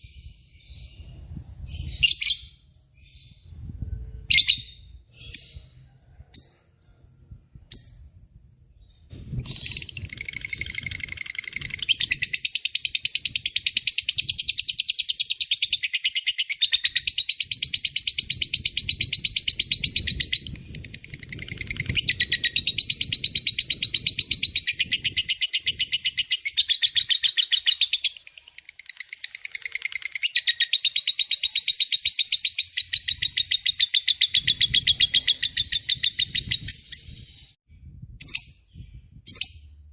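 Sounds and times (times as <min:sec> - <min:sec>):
lovebird rattling trill: 0:09.4 - 0:15.2, 0:17.0 - 0:31.0.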